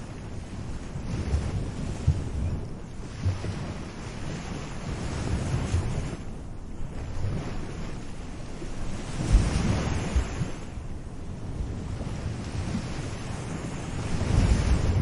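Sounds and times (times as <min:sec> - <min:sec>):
sea waves washing onto beach: 0:00.0 - 0:15.0
wind buffeting microphone: 0:00.0 - 0:15.0.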